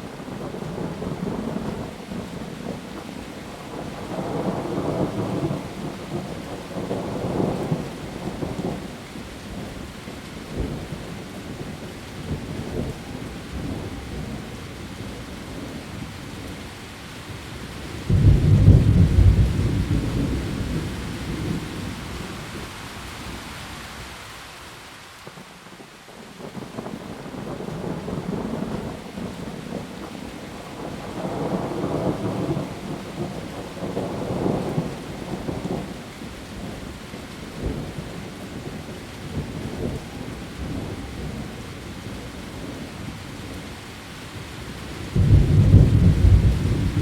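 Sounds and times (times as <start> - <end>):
heavy rain on leaves: 0.0 - 47.0
thunder rumbling: 18.0 - 22.7, 26.4 - 36.8, 45.1 - 47.0
loud thunderclap: 18.1 - 21.6, 45.1 - 47.0.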